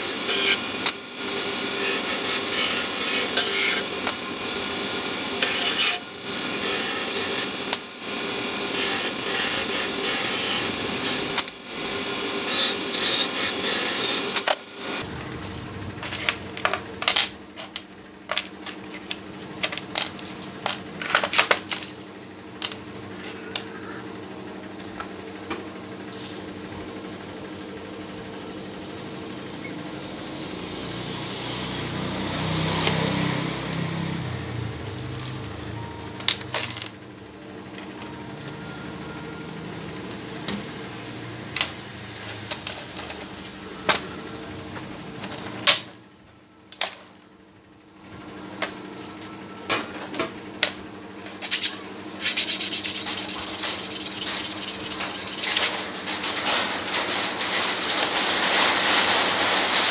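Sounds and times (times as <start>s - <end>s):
power tool running: 0.0s - 15.7s, 29.5s - 35.9s, 51.5s - 59.9s.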